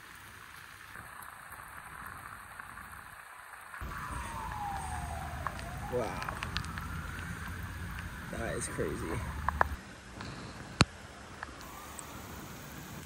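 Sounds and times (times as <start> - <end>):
rain hiss: 0.0 - 13.0
siren wailing: 3.8 - 9.8, 11.6 - 13.0
low rumble: 3.8 - 10.8.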